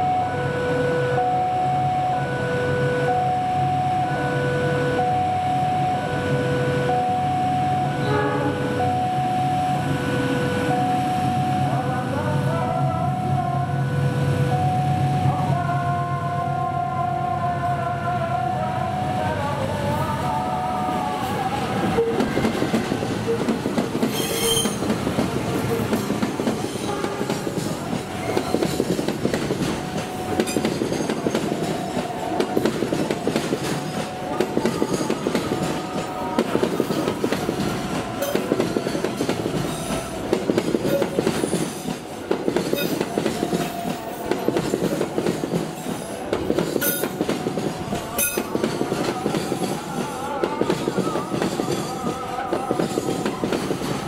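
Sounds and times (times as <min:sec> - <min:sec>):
diesel locomotive passing: 0:00.0 - 0:54.0
train wheels clacking over rail joints: 0:22.2 - 0:54.0
thin wheel squeal: 0:24.1 - 0:24.8.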